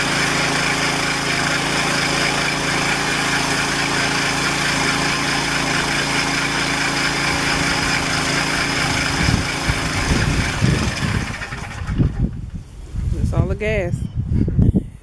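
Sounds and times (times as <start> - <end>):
small gasoline engine running: 0.0 - 12.5.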